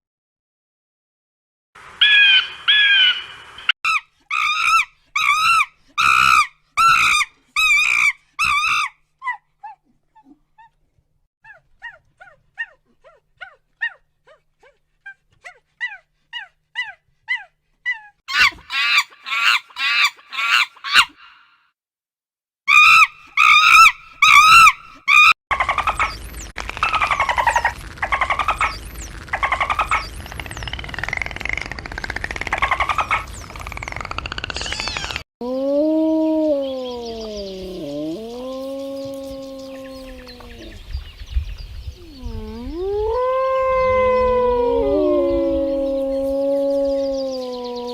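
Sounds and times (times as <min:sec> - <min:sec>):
loud animal calls rising and falling: 0:22.7 - 0:40.8, 0:42.0 - 0:47.9.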